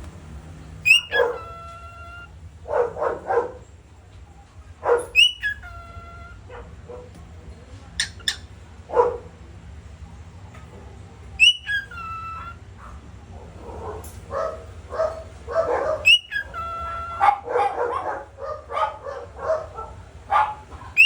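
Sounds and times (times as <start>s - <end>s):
parrot squawks: 0.8s - 2.4s, 5.0s - 6.7s, 8.0s - 8.5s, 11.4s - 12.8s, 15.8s - 18.0s, 20.4s - 21.0s
parrot yipping calls: 0.8s - 3.5s, 4.9s - 7.1s, 7.9s - 8.6s, 11.4s - 13.0s, 14.6s - 21.0s.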